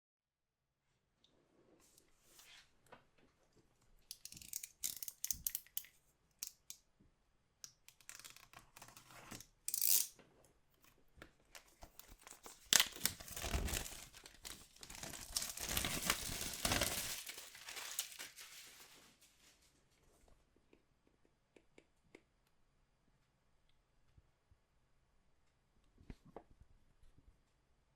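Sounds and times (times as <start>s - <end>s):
plastic wrapping tearing and crinkling: 11.9s - 19.3s.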